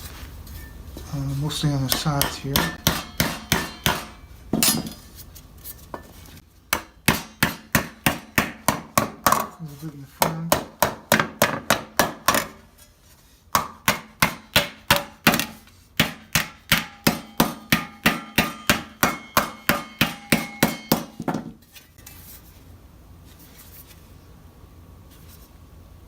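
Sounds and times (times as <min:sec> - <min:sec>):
hammer striking steel plate: 0:01.8 - 0:05.1, 0:06.7 - 0:09.5, 0:13.6 - 0:21.4.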